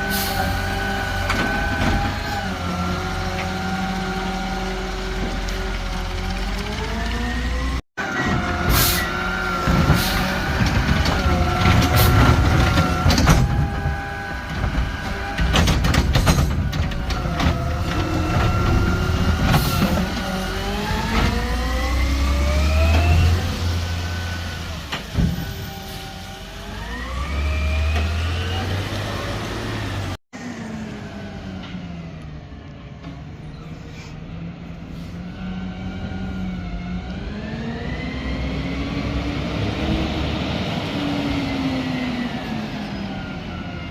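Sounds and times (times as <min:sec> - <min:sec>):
garbage truck engine revving: 0:00.0 - 0:32.5
metallic bangs and clanks: 0:09.6 - 0:20.3.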